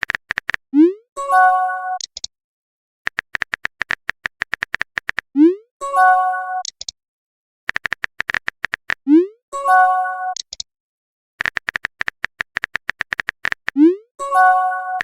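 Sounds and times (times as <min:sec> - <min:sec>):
short clicking beeps: 0:10.3 - 0:10.7.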